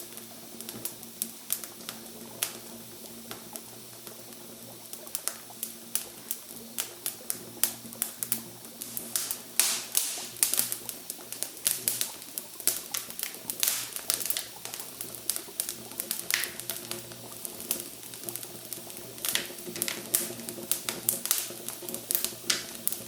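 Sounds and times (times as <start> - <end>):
campfire crackling: 3.2 - 23.0.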